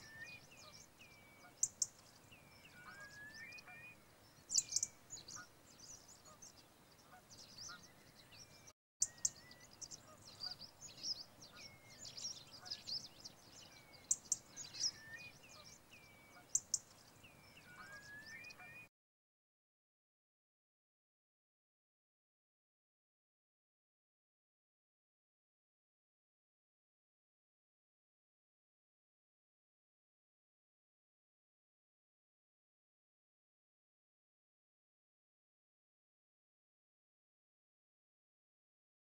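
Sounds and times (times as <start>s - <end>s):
bird whistled call: 0.0s - 5.5s, 13.6s - 18.9s
birds chirping: 0.0s - 18.9s.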